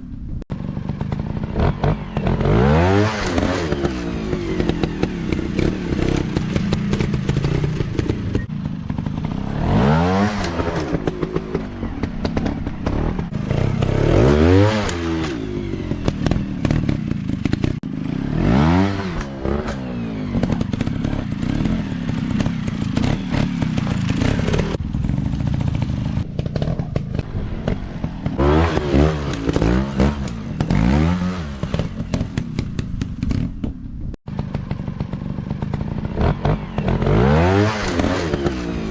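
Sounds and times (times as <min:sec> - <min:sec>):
dirt bike engines revving: 0:00.5 - 0:33.6, 0:34.3 - 0:38.9
knocks and clatter: 0:19.0 - 0:37.1.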